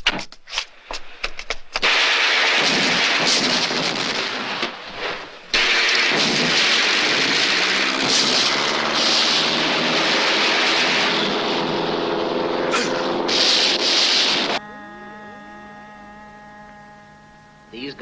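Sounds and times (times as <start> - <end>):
sharp gunfire-like cracks: 1.7 - 14.6
loud steady rushing noise: 5.6 - 14.6.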